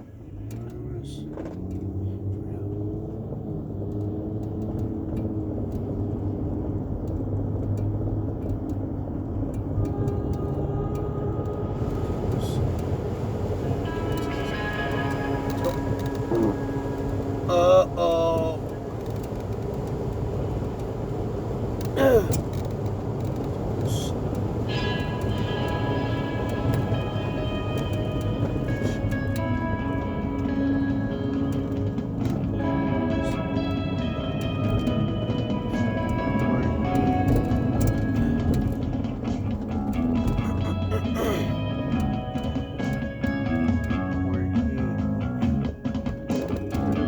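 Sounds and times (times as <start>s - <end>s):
vehicle engine and road hum: 0.0s - 47.0s
pitched tones drifting: 9.7s - 19.8s.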